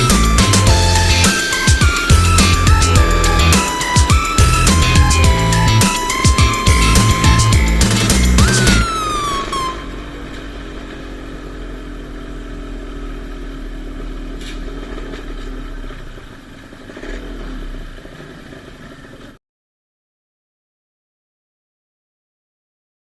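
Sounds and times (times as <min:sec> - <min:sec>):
falling tone: 0:00.0 - 0:11.3
dirt bike engines running: 0:00.0 - 0:19.4.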